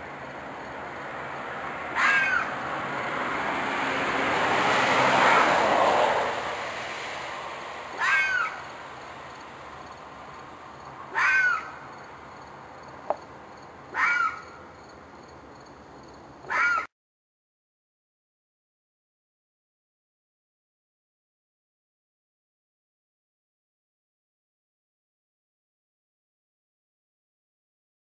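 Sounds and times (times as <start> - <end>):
animal shrill calls: 2.0 - 2.5, 8.0 - 8.6, 11.1 - 11.8, 13.9 - 14.6, 16.5 - 16.9.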